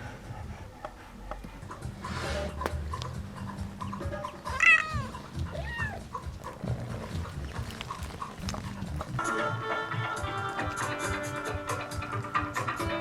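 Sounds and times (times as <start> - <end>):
cat meowing: 4.4 - 6.2.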